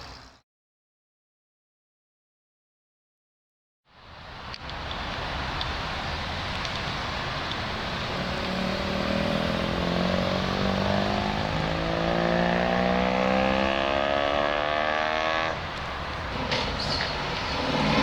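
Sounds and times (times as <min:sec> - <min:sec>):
car engine accelerating: 0:07.3 - 0:18.0.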